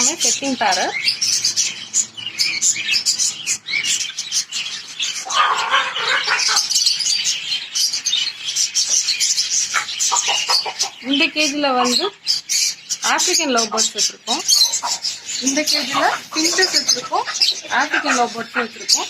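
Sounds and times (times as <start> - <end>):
lovebirds chirping and chattering: 0.0 - 19.0.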